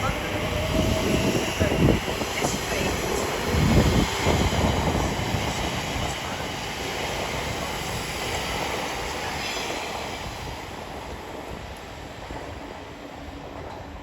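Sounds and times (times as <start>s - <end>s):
electric train rumbling on rails: 0.0s - 14.0s.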